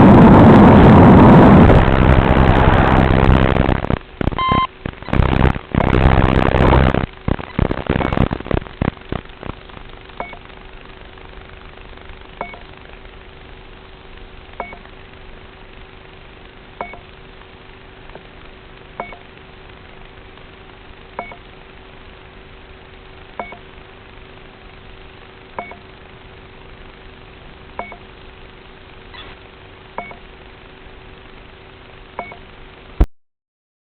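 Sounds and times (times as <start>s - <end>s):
steady hiss and faint hum: 0.0s - 33.1s
short electronic beep: 4.4s - 5.2s.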